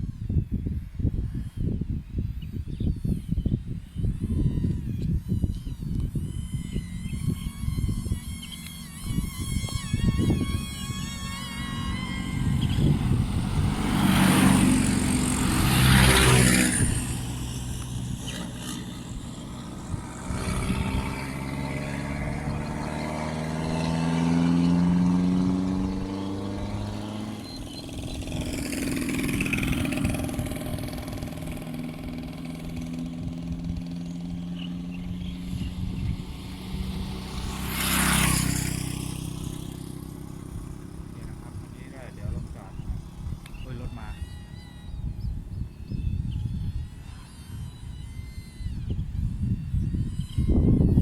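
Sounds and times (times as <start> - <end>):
engine pitch sweeping up and down: 4.0 - 51.0
vehicles driving past: 6.0 - 50.9.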